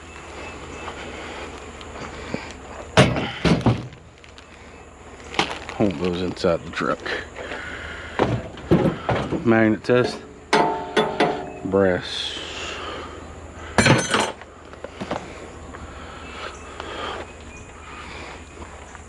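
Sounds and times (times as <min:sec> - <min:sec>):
metal scrap clinking and clanking: 0:10.0 - 0:11.6, 0:13.8 - 0:14.4.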